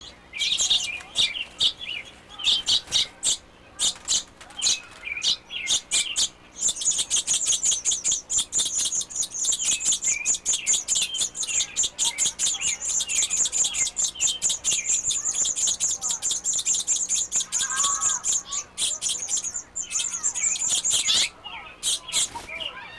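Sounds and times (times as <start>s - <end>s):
baby birds chirping: 0.0s - 22.9s.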